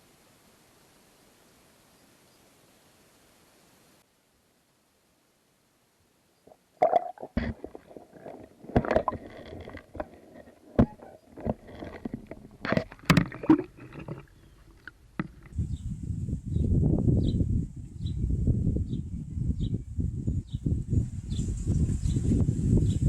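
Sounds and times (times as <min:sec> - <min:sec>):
muffled underwater gurgling: 0:06.8 - 0:14.9
hollow knocks and bumps: 0:15.2 - 0:15.6.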